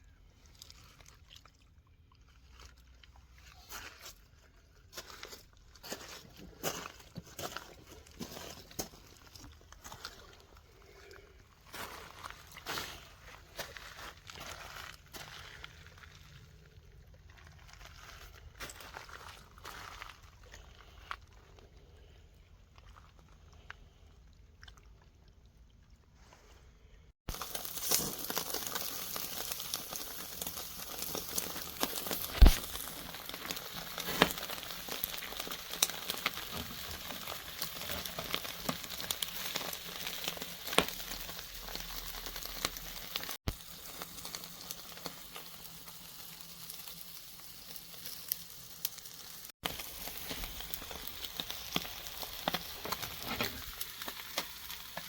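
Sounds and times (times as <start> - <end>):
food sizzling in a pan: 27.3 - 55.0.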